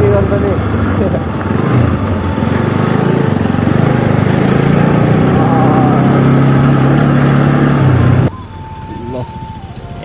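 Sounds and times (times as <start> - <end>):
motorcycle engine running: 0.0 - 8.3.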